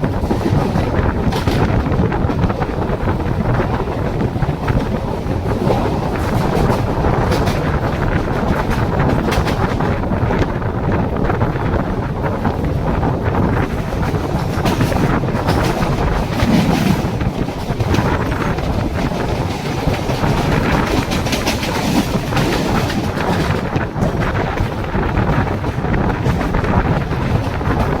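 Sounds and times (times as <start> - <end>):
train rumble: 0.0 - 28.0
wheels clattering over rail joints: 0.0 - 28.0.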